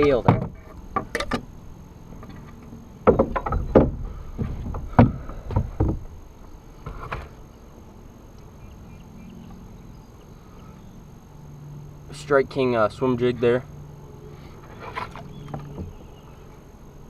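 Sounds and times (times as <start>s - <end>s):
knocks against kayak hull: 3.0s - 6.1s.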